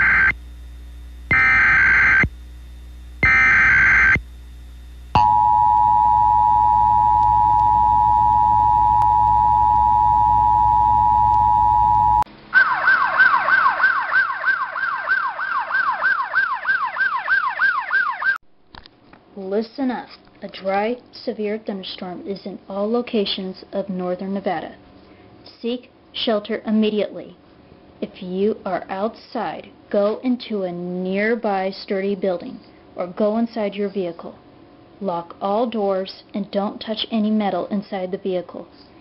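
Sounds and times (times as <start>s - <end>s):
data tone bursts: 0.0s - 0.4s, 1.3s - 2.3s, 3.2s - 4.2s, 5.2s - 12.2s
warbling siren tone: 0.0s - 0.4s, 1.3s - 2.3s, 3.2s - 4.2s, 5.2s - 18.4s
two-tone attention signal: 5.2s - 12.2s.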